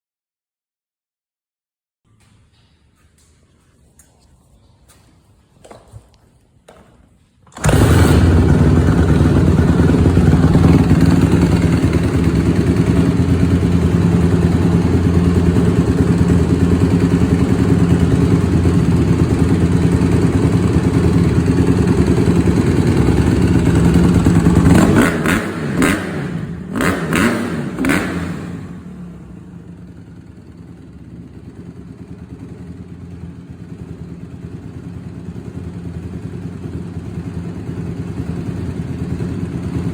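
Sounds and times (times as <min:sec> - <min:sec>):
dirt bike engine revving: 0:07.6 - 0:20.0, 0:20.6 - 0:29.1.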